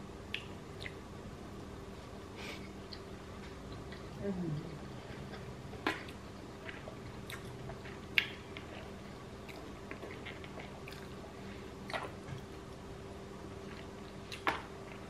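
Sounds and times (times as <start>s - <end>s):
faint steady hum: 0.0s - 15.0s
person chewing: 0.3s - 1.0s, 5.0s - 12.8s, 13.6s - 15.0s
wet mouth clicks and smacks: 0.3s - 1.0s.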